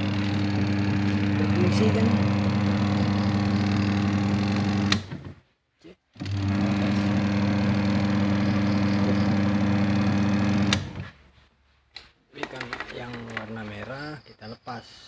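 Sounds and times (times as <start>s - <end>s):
washing machine motor humming: 0.0s - 5.4s, 6.2s - 11.2s.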